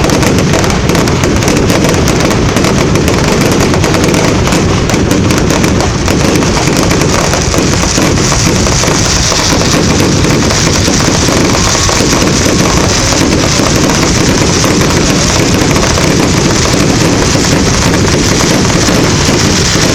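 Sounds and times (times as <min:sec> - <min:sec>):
fireworks crackling: 0:00.0 - 0:19.9.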